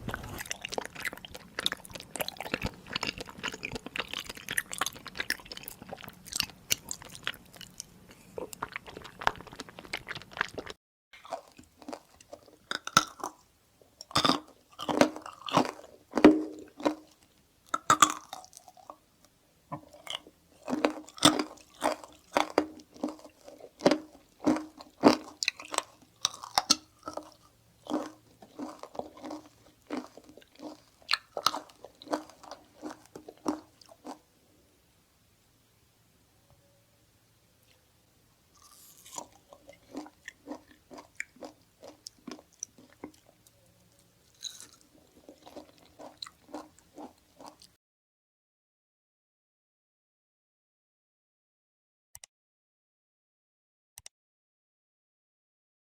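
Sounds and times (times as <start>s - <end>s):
crunchy food being chewed: 0.0s - 34.4s, 38.5s - 47.8s
background hiss: 32.1s - 45.2s.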